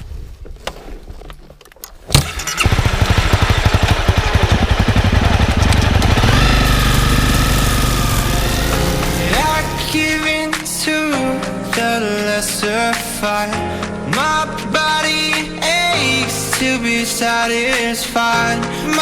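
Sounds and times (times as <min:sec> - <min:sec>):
dirt bike engine running: 0:02.2 - 0:10.2.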